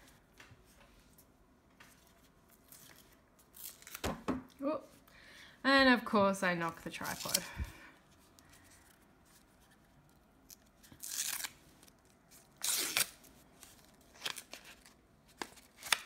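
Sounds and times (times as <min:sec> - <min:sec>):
paper packaging tearing: 0:03.5 - 0:04.0, 0:07.0 - 0:07.6, 0:10.5 - 0:16.0.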